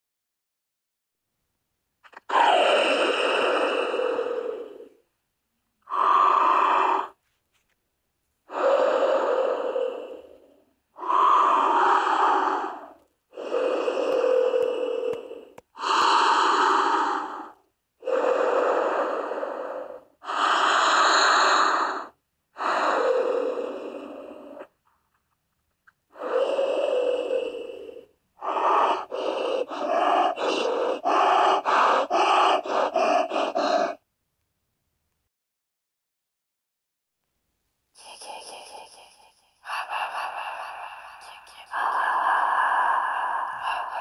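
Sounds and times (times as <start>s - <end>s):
person breathing heavily: 2.1s - 5.1s, 5.8s - 7.3s, 8.4s - 24.8s, 26.1s - 34.1s, 38.0s - 44.0s.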